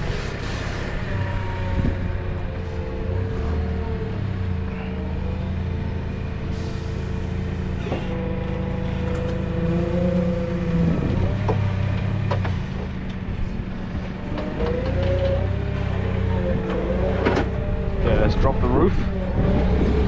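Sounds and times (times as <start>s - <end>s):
vehicle engine running: 0.0s - 20.0s
wavering whine: 13.0s - 20.0s.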